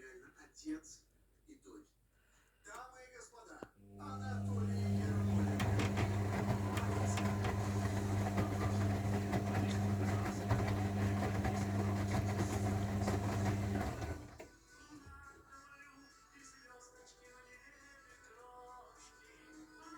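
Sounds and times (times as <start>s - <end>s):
washing machine humming and rattling: 4.0s - 14.4s.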